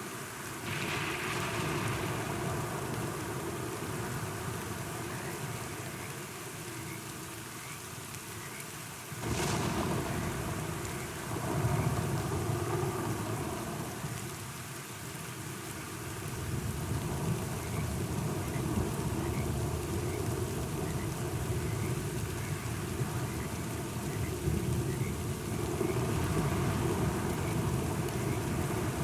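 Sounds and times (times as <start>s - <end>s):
steady rain falling: 0.0s - 29.0s
thunder crack and rumble: 0.7s - 5.3s, 9.2s - 14.3s, 16.3s - 29.0s.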